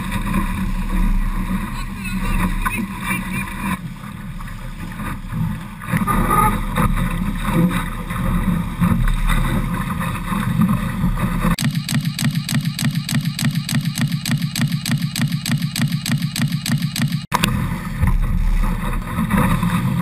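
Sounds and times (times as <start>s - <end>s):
steady pulsing sound: 11.4s - 19.4s.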